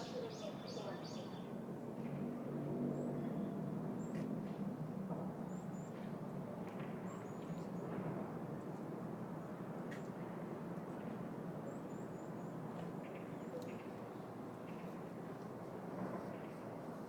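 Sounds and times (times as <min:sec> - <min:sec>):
distant traffic hum: 0:00.0 - 0:11.7.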